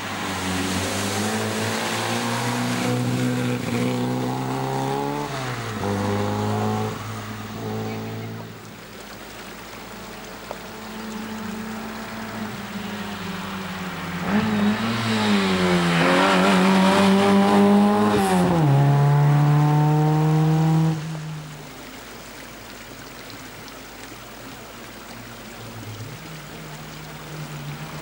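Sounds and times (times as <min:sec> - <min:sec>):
rally car engine passing: 0:00.0 - 0:08.6, 0:10.8 - 0:21.3.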